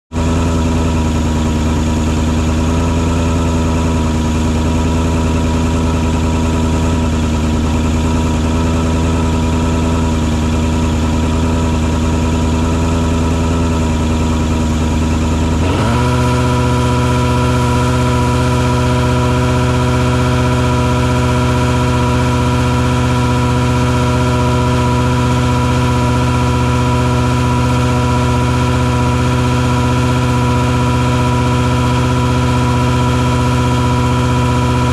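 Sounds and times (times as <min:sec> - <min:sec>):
truck engine running: 0:00.1 - 0:34.9.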